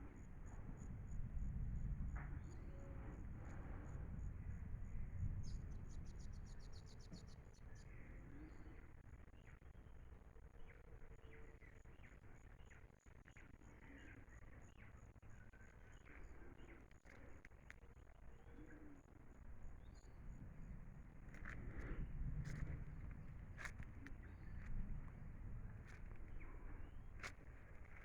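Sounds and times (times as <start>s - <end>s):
low rumble: 15.4s - 28.0s.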